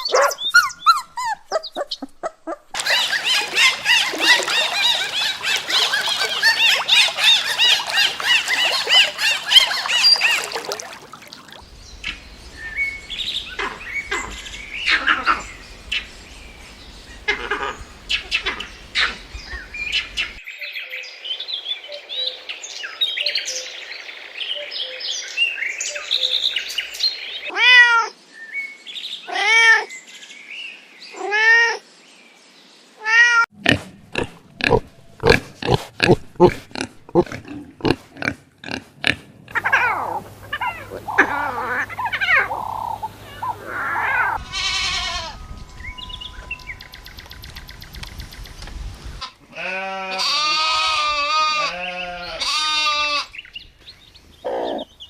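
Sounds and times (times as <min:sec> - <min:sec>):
animal chirping: 0:00.0 - 0:10.6, 0:39.5 - 0:44.4, 0:54.4 - 0:54.9
drawn-out animal calls: 0:00.0 - 0:10.6, 0:39.5 - 0:45.4.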